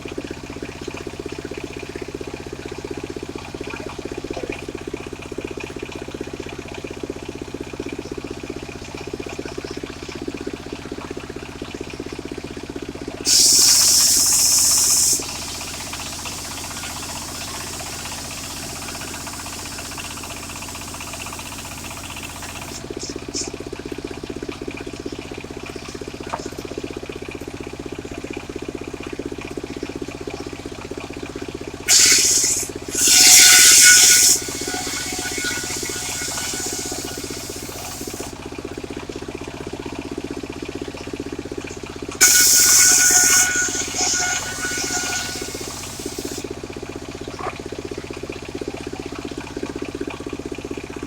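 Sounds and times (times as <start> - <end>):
circular saw blade spinning: 13.3 - 23.5, 31.9 - 38.4, 42.2 - 46.5
saw blade cutting wood: 13.3 - 23.5, 31.9 - 38.4, 42.2 - 46.5
drive hum: 31.9 - 38.3, 42.2 - 46.4.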